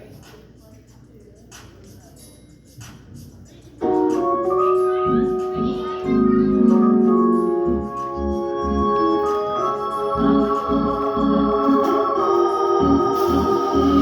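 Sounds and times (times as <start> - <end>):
organ chords: 3.8 - 14.0
low organ bass notes: 4.0 - 14.0.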